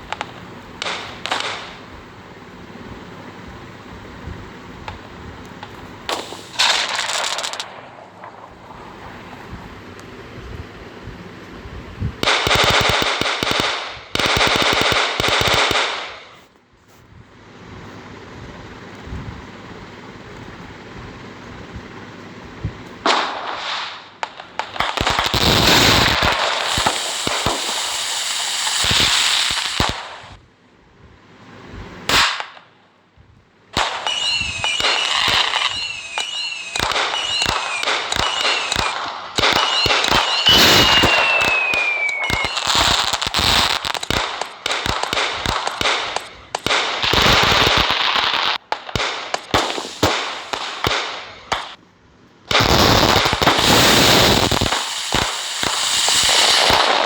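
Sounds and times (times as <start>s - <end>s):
firecrackers popping and crackling: 0.0s - 16.6s, 22.5s - 30.4s, 32.0s - 32.7s, 33.7s - 51.8s, 52.5s - 57.0s
falling firework whistles: 4.9s - 9.6s, 23.0s - 30.4s, 31.8s - 32.6s, 33.8s - 51.8s, 52.5s - 57.0s.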